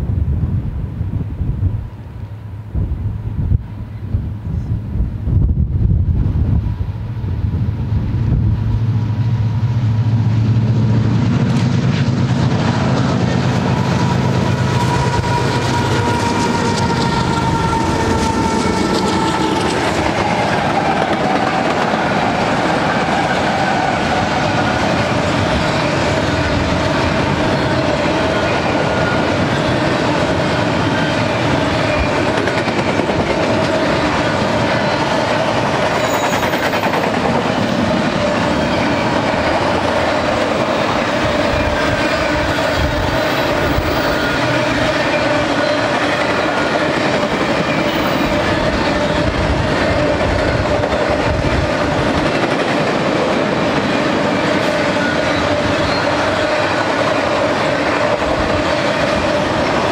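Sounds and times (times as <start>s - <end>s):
deep locomotive engine drone: 0.0s - 59.9s
wheels rumbling and clattering on rail: 0.0s - 59.9s.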